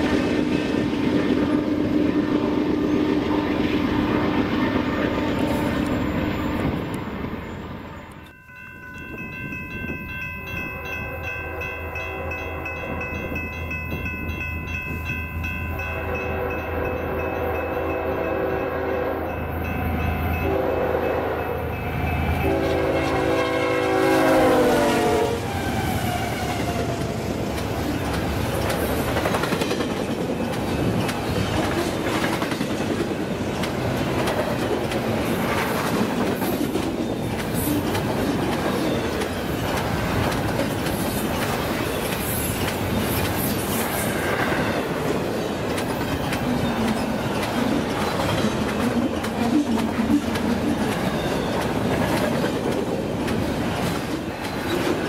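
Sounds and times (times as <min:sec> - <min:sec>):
train rumble: 0:00.0 - 0:55.0
locomotive horn blasts: 0:01.1 - 0:07.0, 0:10.7 - 0:13.1, 0:15.8 - 0:19.4, 0:20.3 - 0:26.5
wheels clacking over rail joints: 0:26.6 - 0:55.0.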